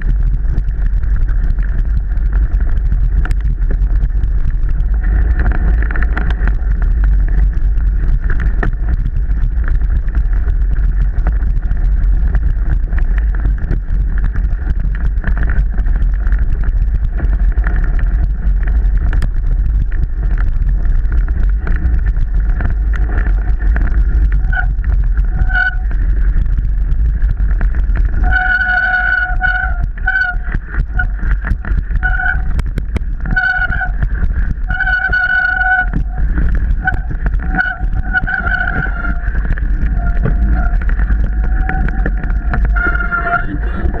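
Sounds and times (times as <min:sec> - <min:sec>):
mountain bike rattling on trail: 0:00.0 - 0:44.0
wind on microphone: 0:00.0 - 0:44.0
disc brakes squealing: 0:41.4 - 0:44.0.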